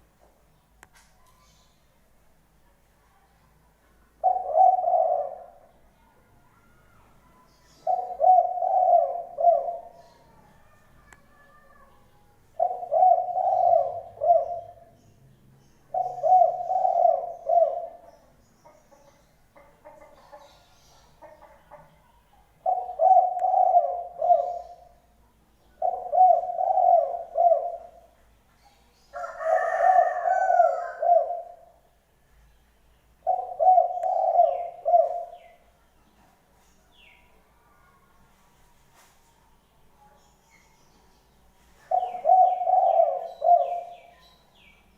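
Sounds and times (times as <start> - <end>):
bird calling low phrases: 4.2 - 5.7, 7.8 - 12.0, 12.6 - 15.0, 15.8 - 19.2, 22.6 - 25.0, 25.7 - 28.2, 28.8 - 31.9, 33.2 - 35.6, 41.8 - 44.8.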